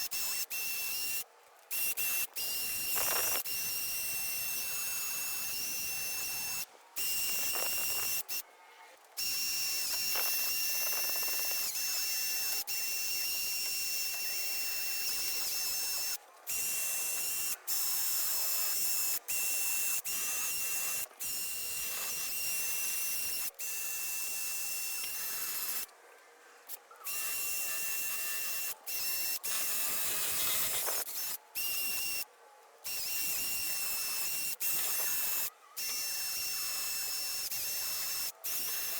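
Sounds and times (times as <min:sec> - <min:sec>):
handheld power tool whining: 0:00.0 - 0:08.4, 0:09.2 - 0:25.9, 0:27.1 - 0:32.3, 0:32.9 - 0:38.9
hissing scratchy noise: 0:29.8 - 0:31.1.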